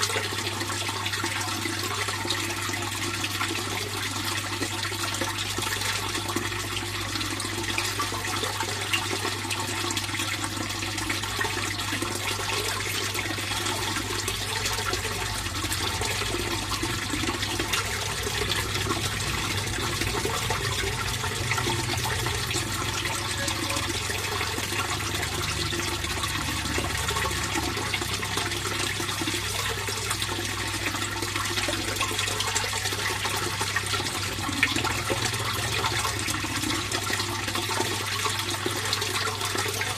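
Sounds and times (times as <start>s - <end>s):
water splashing into a pond: 0.0s - 39.9s
low steady hum: 12.7s - 37.3s.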